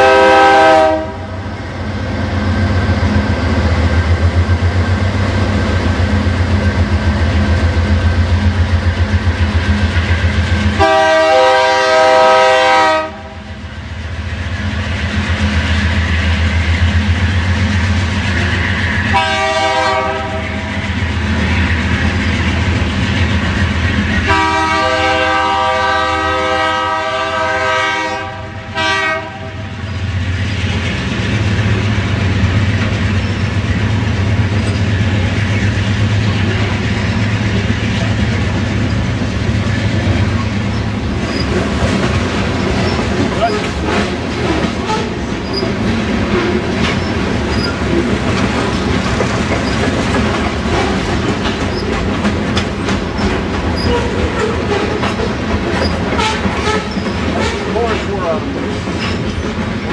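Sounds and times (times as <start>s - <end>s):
locomotive horn: 0.0s - 1.4s, 10.8s - 13.5s, 19.1s - 20.8s, 24.2s - 29.8s, 44.8s - 45.3s, 53.8s - 55.0s, 56.1s - 58.0s
train engine rumble: 0.0s - 59.9s
wheels clacking over rail joints: 29.9s - 59.9s.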